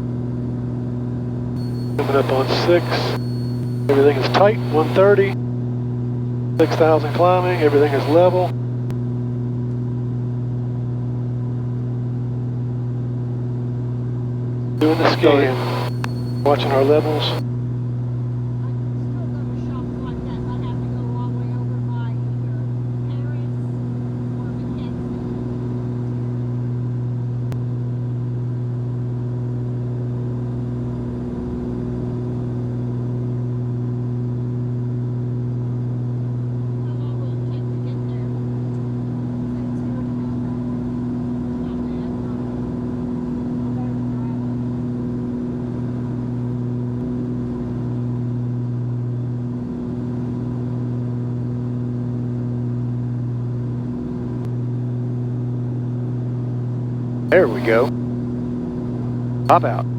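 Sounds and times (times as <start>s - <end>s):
propeller plane engines droning: 1.6s - 5.4s, 6.6s - 8.5s, 14.8s - 17.4s, 57.3s - 57.9s
faint click: 14.8s - 17.4s.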